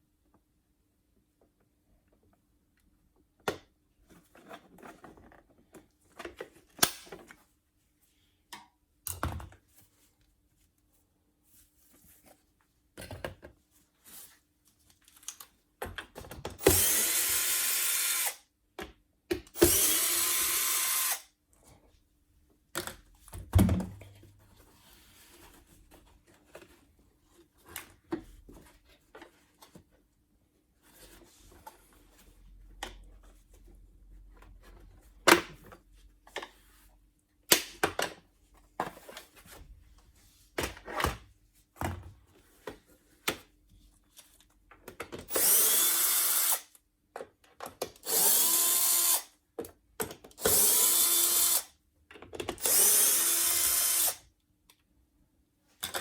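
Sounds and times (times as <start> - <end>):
cordless drill running: 16.6 - 18.4, 19.6 - 21.3, 45.3 - 46.7, 48.0 - 49.3, 50.4 - 51.7, 52.6 - 54.2.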